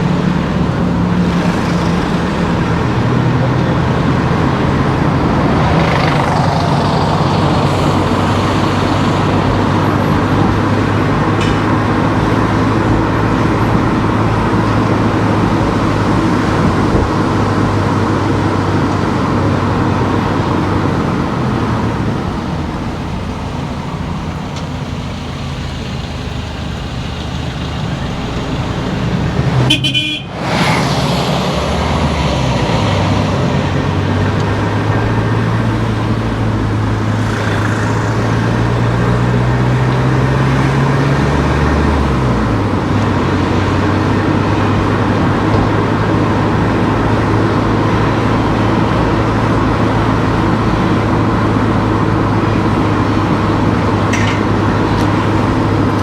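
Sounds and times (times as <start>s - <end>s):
car engine hum: 0.0s - 56.0s
tyre and road noise: 0.0s - 56.0s.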